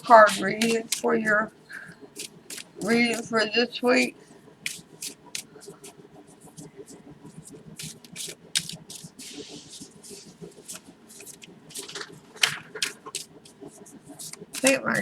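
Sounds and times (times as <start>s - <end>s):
cards shuffling: 0.2s - 1.4s, 2.2s - 3.3s, 4.6s - 6.0s, 7.8s - 9.4s, 10.2s - 15.0s.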